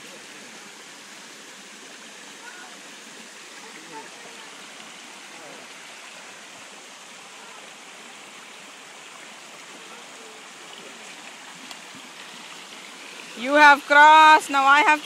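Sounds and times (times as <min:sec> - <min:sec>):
river water rushing: 0:00.0 - 0:15.0
faint distant voices: 0:02.3 - 0:11.6.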